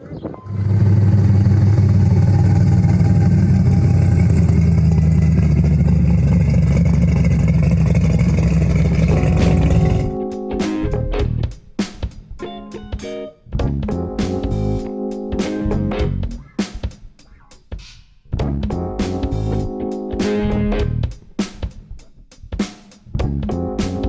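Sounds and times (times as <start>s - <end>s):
car engine rumbling: 0.4s - 10.1s.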